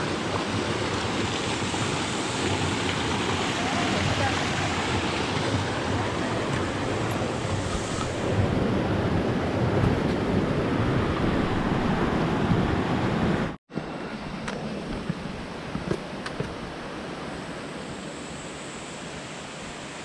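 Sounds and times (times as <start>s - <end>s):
stream water rushing over rocks: 0.0s - 13.6s.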